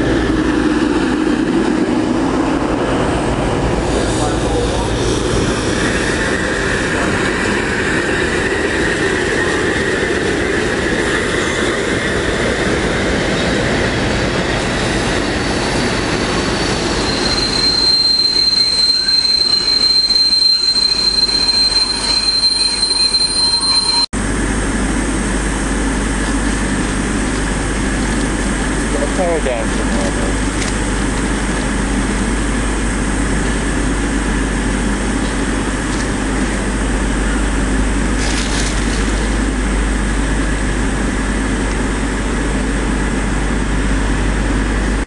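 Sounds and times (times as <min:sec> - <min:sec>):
train wheels rumbling and clattering: 0:00.0 - 0:45.0
high-pitched wheel squeal: 0:15.4 - 0:24.1.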